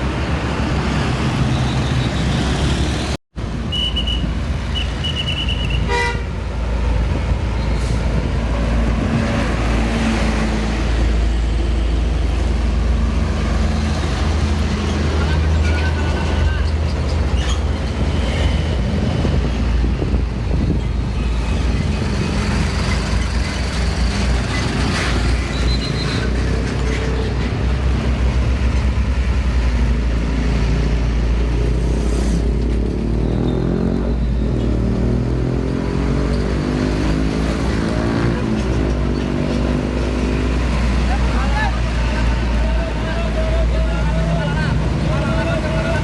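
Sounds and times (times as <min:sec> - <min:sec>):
heavy road traffic: 0:00.0 - 0:46.0
truck diesel engine shifting gears: 0:20.8 - 0:31.8.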